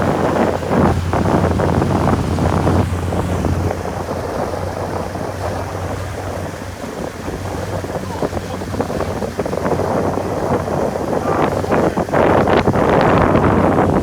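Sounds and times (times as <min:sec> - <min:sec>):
low steady hum: 0:00.0 - 0:04.1
water rushing past hull: 0:00.0 - 0:14.0
wind buffeting microphone: 0:00.0 - 0:14.0.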